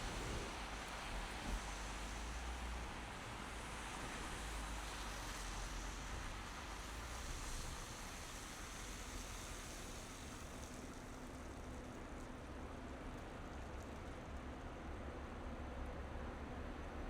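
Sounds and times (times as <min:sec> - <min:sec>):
tyres hissing on road: 0:00.0 - 0:11.8.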